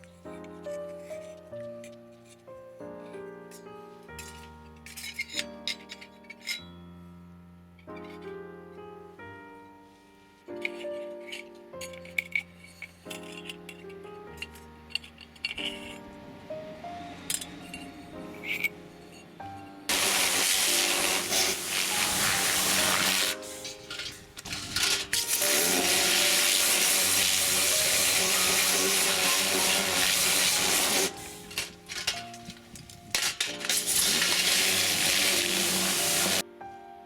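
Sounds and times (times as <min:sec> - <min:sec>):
background music: 0:00.0 - 0:37.0
loud rushing hiss: 0:19.9 - 0:32.5, 0:33.5 - 0:36.4.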